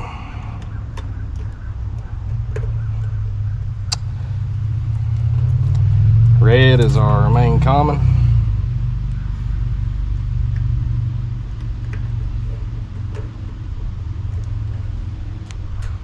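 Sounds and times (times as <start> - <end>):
low mechanical hum: 0.0 - 16.0
faint clicks and taps: 0.6 - 3.2.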